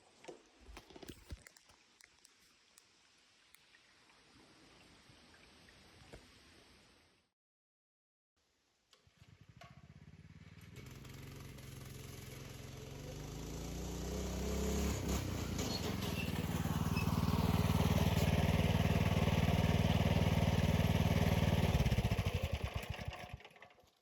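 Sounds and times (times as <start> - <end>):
minibike engine revving: 9.1 - 23.7
engine shutting off: 9.1 - 23.8.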